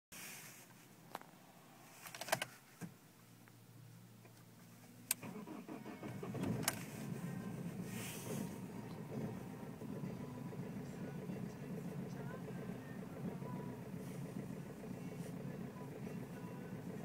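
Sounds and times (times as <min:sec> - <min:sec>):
starter motor whirr: 0:05.1 - 0:17.0
diesel engine rough idle: 0:05.2 - 0:17.0.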